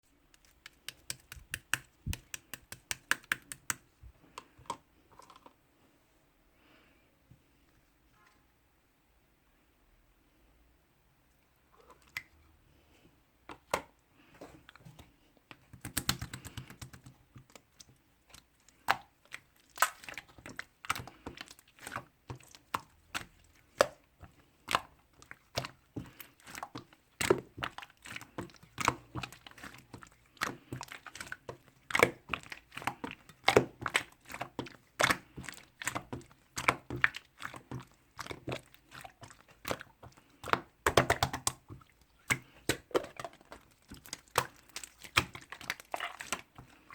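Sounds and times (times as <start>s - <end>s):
slime clicking and popping: 0.3s - 3.8s, 15.7s - 17.2s, 18.8s - 21.0s.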